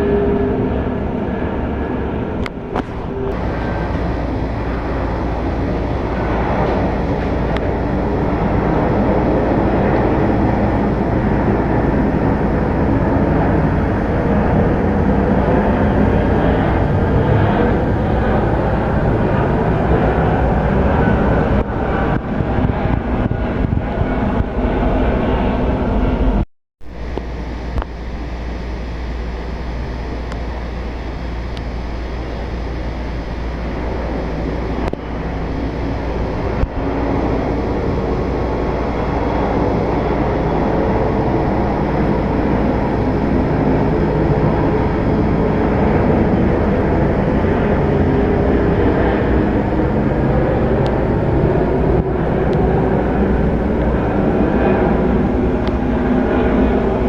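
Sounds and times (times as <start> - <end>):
jet airliner engines: 0.0 - 57.0.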